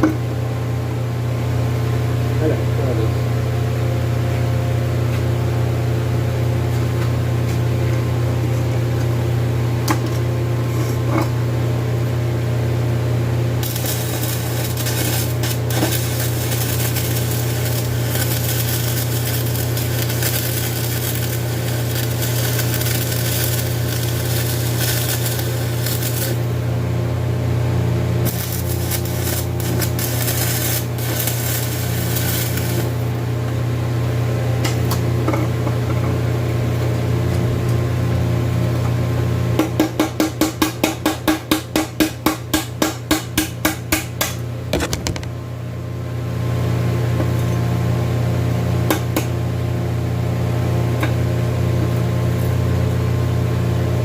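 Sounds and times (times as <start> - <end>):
welder humming: 12.7 - 33.7
welding arc crackling and hissing: 13.6 - 26.7, 28.2 - 33.2.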